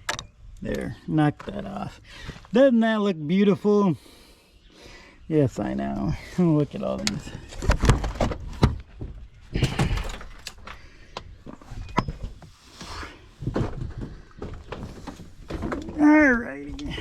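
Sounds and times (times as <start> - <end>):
objects knocking and thudding: 7.4 - 12.4, 13.4 - 17.0.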